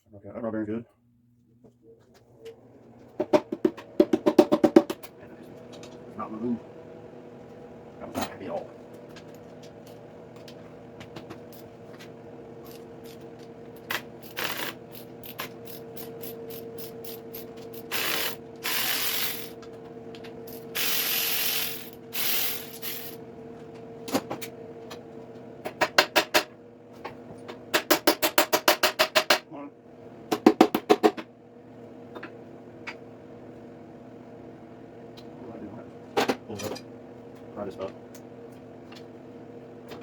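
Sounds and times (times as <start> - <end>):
faint steady hum: 0.0 - 27.6
short hissing bursts: 20.8 - 23.2.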